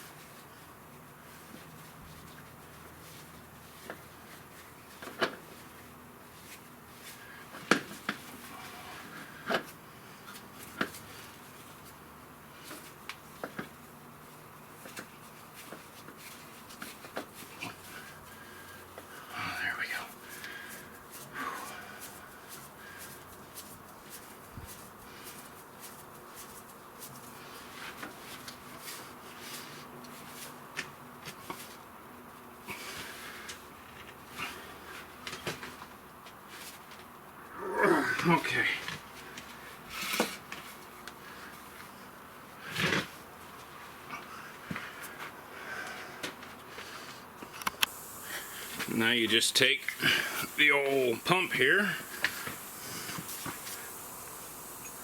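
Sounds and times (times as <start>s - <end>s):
faint steady hum: 0.0s - 55.0s
steady low background noise: 0.0s - 55.0s.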